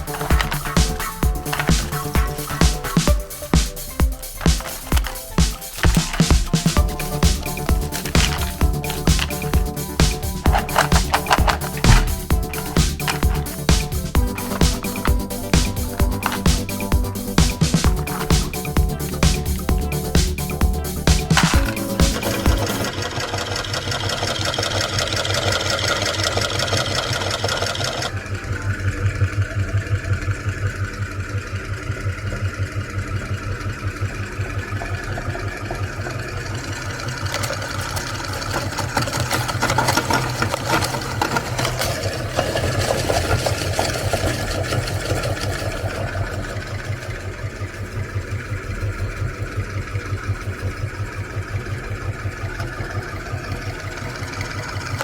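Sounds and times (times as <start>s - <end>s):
cookies crackling in grinder: 0.0s - 28.1s, 36.8s - 46.7s
meat grinder motor humming: 0.0s - 55.0s.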